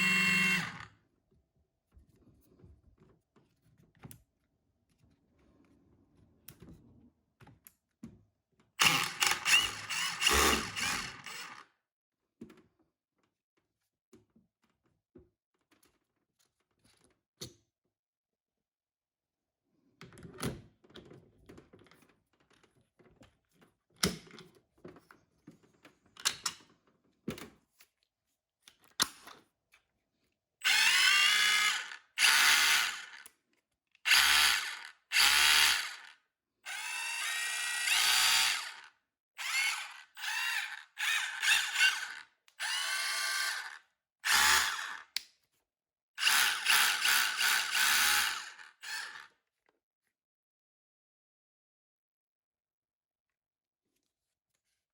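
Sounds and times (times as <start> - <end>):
rotary hammer drill whining: 0.0 - 0.9, 8.8 - 11.6, 30.6 - 33.2, 34.1 - 36.1, 36.7 - 45.1, 46.2 - 49.3.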